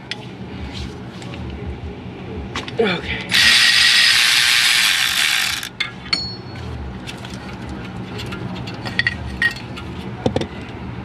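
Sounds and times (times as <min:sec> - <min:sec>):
ratchet running: 0:03.3 - 0:05.7.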